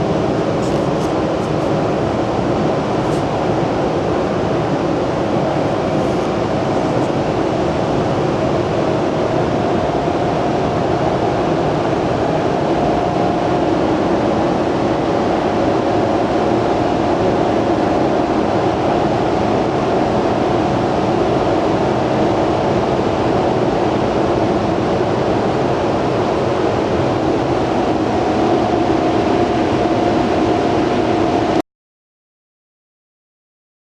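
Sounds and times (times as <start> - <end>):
machinery humming: 0.0 - 31.6.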